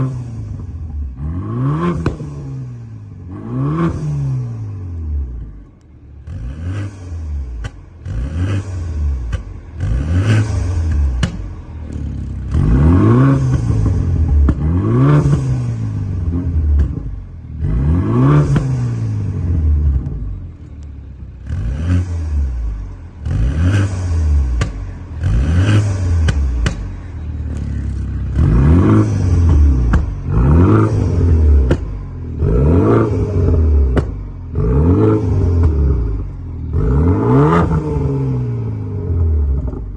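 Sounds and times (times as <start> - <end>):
car engine revving: 0.0 - 39.9
exhaust pops: 1.8 - 2.6, 7.5 - 8.2, 9.2 - 21.6, 22.4 - 38.2.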